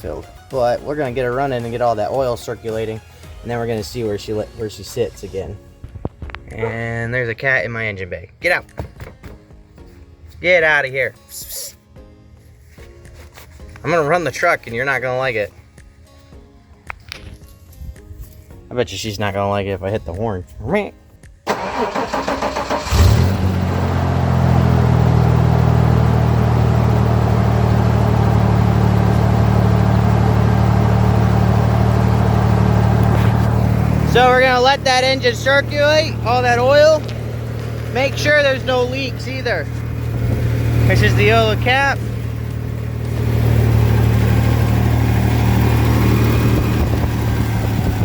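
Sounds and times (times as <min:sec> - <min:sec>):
car engine starting and idling: 0:21.5 - 0:48.0.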